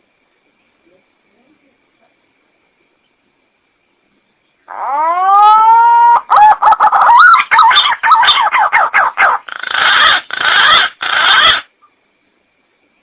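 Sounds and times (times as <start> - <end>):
pigeon warbling notes: 4.7 - 11.7.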